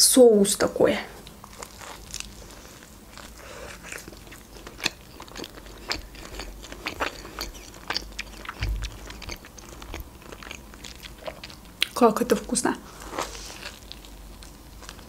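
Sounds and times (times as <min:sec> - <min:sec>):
bread crunching: 0:01.3 - 0:11.9
wet mouth clicks: 0:04.8 - 0:10.0.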